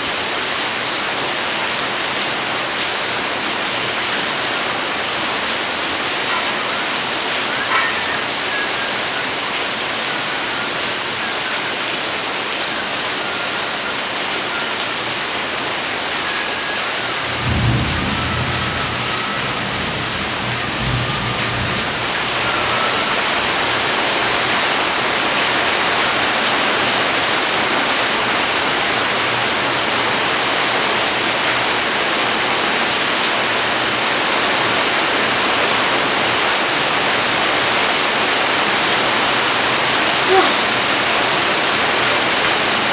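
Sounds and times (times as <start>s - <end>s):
steady rain pouring: 0.0s - 42.9s
low thunder rumble: 17.1s - 24.6s.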